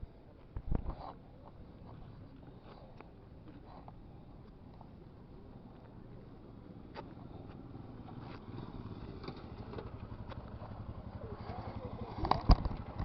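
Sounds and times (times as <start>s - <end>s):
motorcycle engine running: 5.7s - 13.0s.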